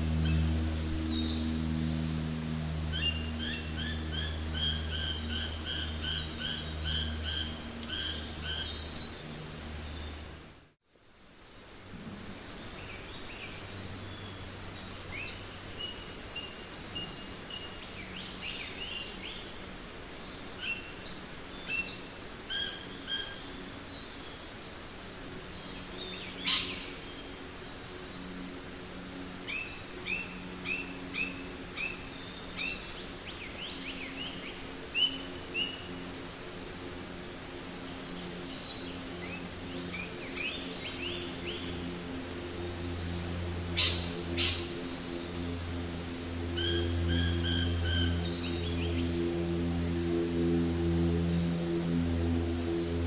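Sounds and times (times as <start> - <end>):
birds calling and chirping: 0.0 - 10.6, 25.2 - 37.0, 37.8 - 53.0
evenly repeated bird calls: 25.5 - 27.3, 43.2 - 44.9.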